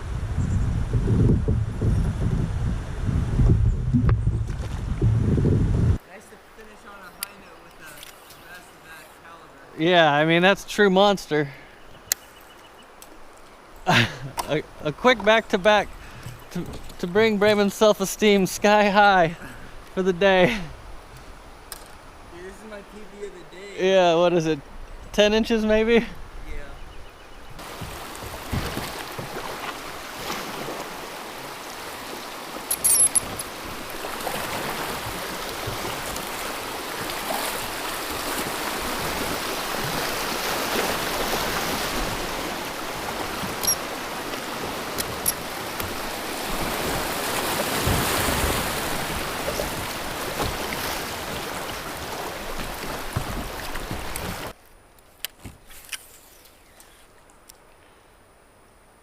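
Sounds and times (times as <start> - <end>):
river rushing: 27.6 - 54.6.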